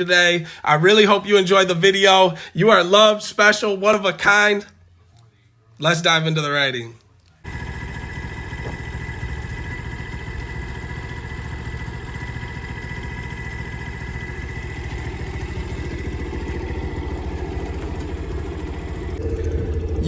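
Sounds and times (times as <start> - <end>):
motorcycle engine running: 7.4 - 20.0.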